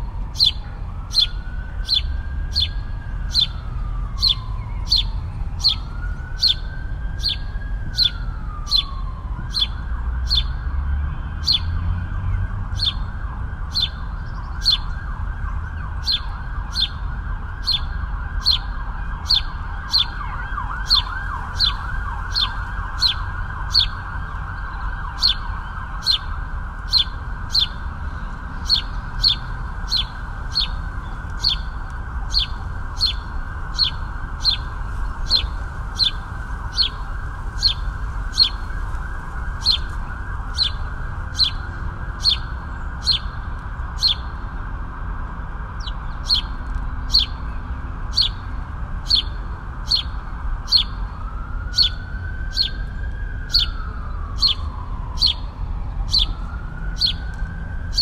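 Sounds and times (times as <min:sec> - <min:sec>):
low urban rumble: 0:00.0 - 0:58.0
bird sharp high chirp: 0:00.4 - 0:03.6, 0:04.2 - 0:05.8, 0:08.0 - 0:08.9, 0:11.4 - 0:11.7, 0:13.7 - 0:14.0, 0:14.6 - 0:14.9, 0:17.6 - 0:18.7, 0:19.3 - 0:20.2, 0:20.8 - 0:24.0, 0:26.9 - 0:27.8, 0:28.6 - 0:30.8, 0:31.4 - 0:31.7, 0:32.3 - 0:34.7, 0:35.3 - 0:37.0, 0:37.6 - 0:38.6, 0:39.6 - 0:39.9, 0:40.6 - 0:40.8, 0:42.2 - 0:43.4, 0:45.8 - 0:47.4, 0:48.1 - 0:48.4, 0:49.1 - 0:51.0, 0:51.7 - 0:52.8, 0:53.5 - 0:53.8, 0:54.4 - 0:54.6, 0:55.2 - 0:55.4, 0:56.1 - 0:56.4, 0:57.0 - 0:57.3.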